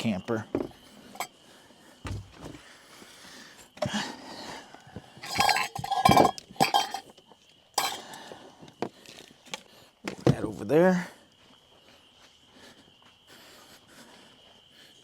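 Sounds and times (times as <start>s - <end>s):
dishes and cookware clattering: 5.2s - 7.2s, 7.8s - 8.1s.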